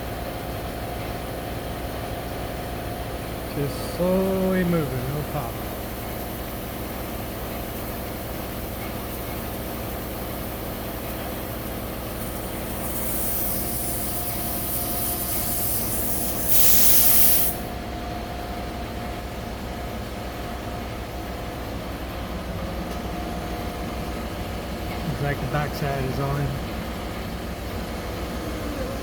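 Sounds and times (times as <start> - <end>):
machine hum: 3.2 - 6.7, 21.9 - 29.0
compressed air hissing: 12.2 - 17.8
loud blast of air: 12.8 - 17.7.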